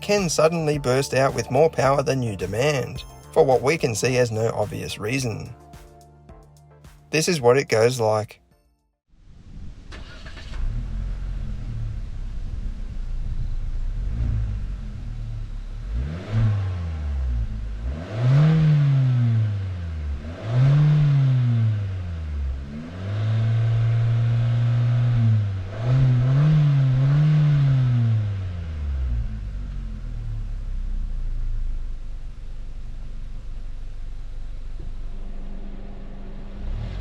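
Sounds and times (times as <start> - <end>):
car engine revving: 9.9 - 37.0.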